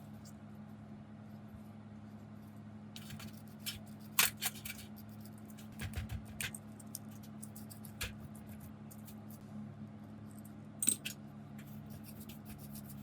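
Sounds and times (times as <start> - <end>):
metal tools clicking and scraping: 10.3 - 11.2.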